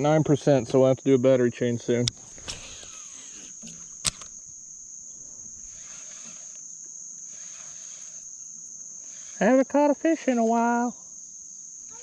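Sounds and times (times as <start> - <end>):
crickets trilling: 0.0 - 12.0
sharp click: 2.0 - 4.5.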